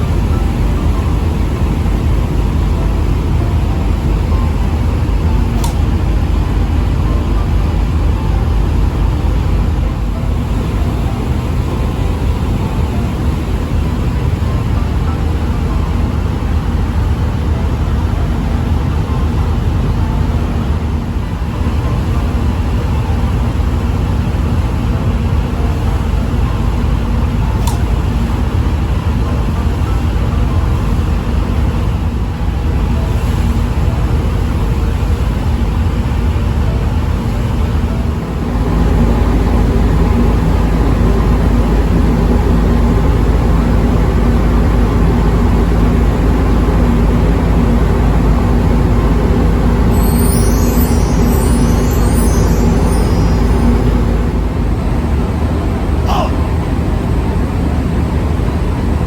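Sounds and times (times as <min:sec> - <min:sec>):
ship engines rumbling: 0:00.0 - 0:59.0
brief click: 0:05.6 - 0:05.9, 0:27.6 - 0:27.9.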